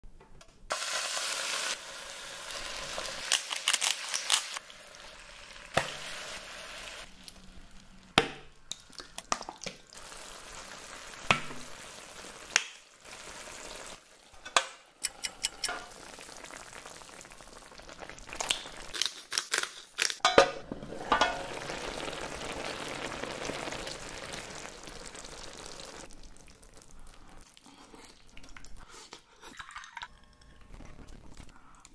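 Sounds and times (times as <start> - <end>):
food sizzling in a pot: 0.7 - 8.1, 9.8 - 14.5, 15.4 - 18.9, 20.6 - 26.9.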